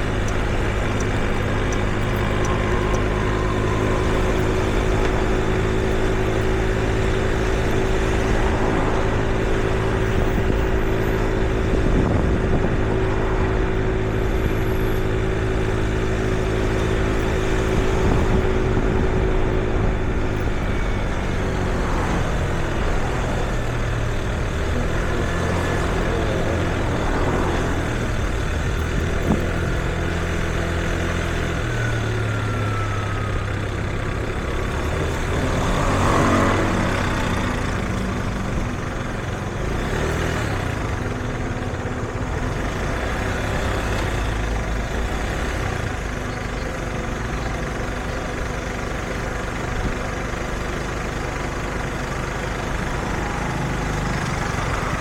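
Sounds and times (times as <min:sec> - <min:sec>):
vehicle passing close: 0:00.0 - 0:31.0, 0:34.6 - 0:41.1, 0:51.5 - 0:55.0
heavy vehicle engines idling: 0:00.0 - 0:55.0.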